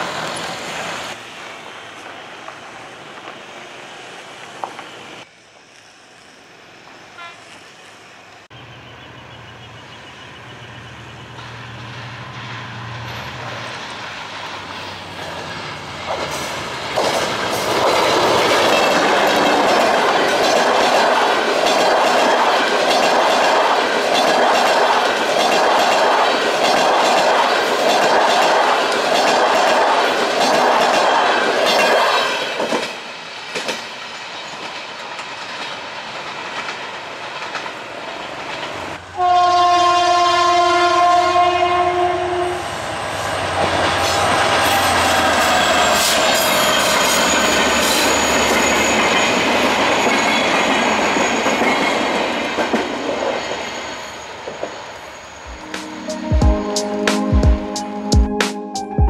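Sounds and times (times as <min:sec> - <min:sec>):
train rumbling by: 0:00.0 - 0:58.4
train horn blast: 0:07.1 - 0:07.6, 0:39.1 - 0:42.8
train wheels clattering over rail joints: 0:14.7 - 0:38.9.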